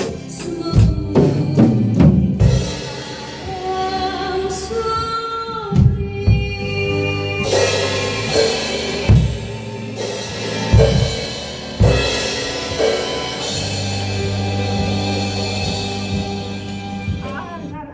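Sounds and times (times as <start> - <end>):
backing track music: 0.0 - 17.9
crash cymbals: 7.4 - 17.2
bass drum hits: 7.4 - 17.6.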